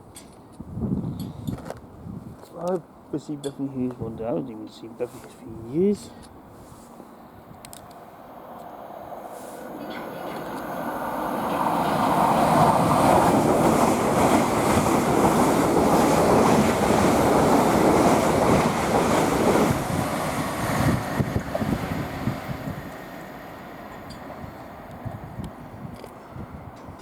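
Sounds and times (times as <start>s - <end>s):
train wheels rushing on rails: 6.8s - 27.0s.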